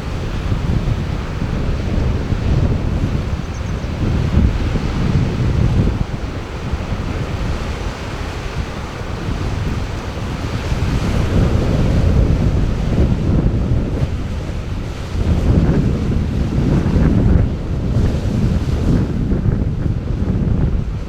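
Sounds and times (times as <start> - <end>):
ocean surf washing: 0.0 - 21.0
wind buffeting microphone: 0.0 - 21.0.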